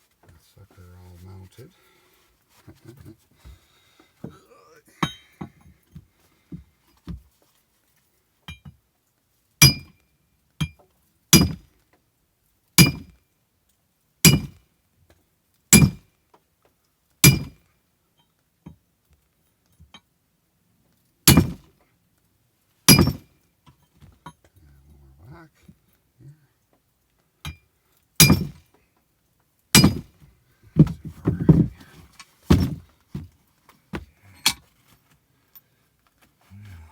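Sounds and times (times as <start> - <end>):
hammer striking metal: 9.6 - 9.9, 17.2 - 17.5, 22.9 - 23.2, 28.2 - 28.6, 29.8 - 30.1.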